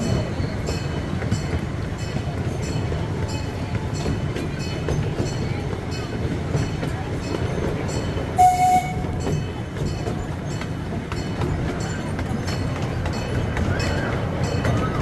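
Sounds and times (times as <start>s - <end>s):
train wheels rumbling on rail: 0.0s - 15.0s
train whistle toot: 8.4s - 9.4s.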